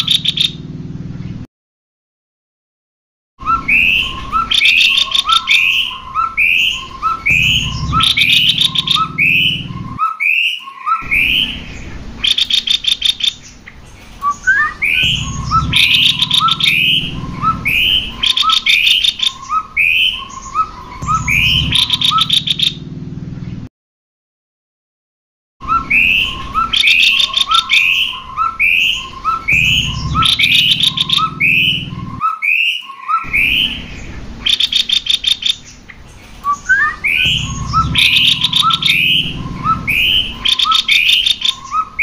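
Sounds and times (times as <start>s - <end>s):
songbirds calling two-note phrases: 3.4s - 22.8s, 25.6s - 42.0s.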